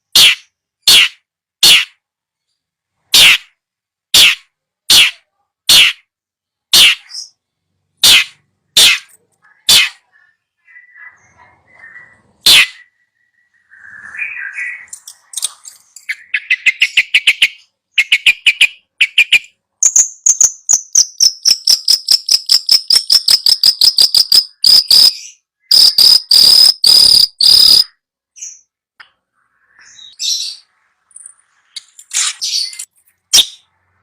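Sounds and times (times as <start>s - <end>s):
songbird singing: 0.0s - 34.0s
harsh bird bursts: 0.1s - 2.0s, 3.1s - 3.6s, 4.2s - 6.1s, 6.7s - 7.3s, 8.0s - 10.0s, 12.4s - 12.9s, 21.2s - 28.0s.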